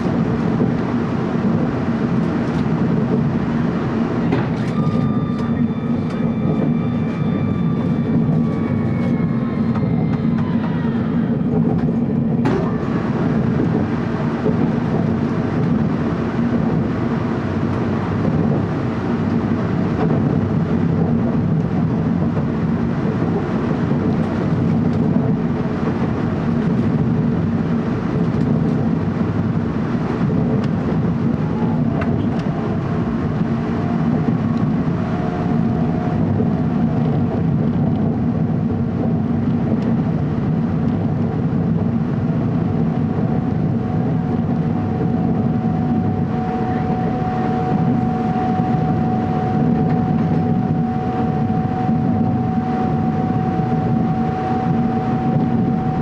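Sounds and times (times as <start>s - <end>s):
train wheels rumbling on rail: 0.0s - 56.0s
faint high whine: 4.2s - 11.4s, 43.8s - 56.0s.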